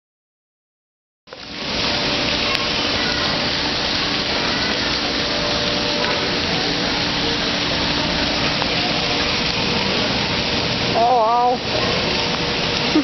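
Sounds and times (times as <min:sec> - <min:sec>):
recycling truck rushing noise: 0:01.5 - 0:13.0.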